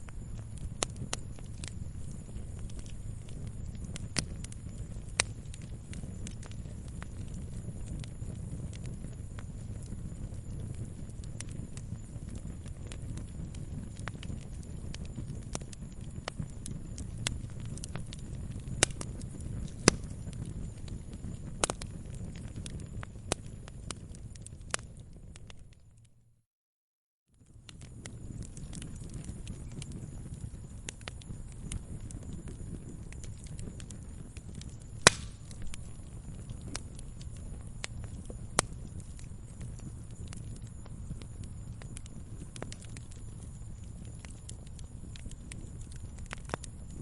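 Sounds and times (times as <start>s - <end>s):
sharp snaps of burning wood: 0.0s - 25.8s, 27.6s - 47.0s
wood fire crackling: 0.0s - 26.1s, 27.4s - 47.0s
fire loud pop: 35.0s - 35.7s.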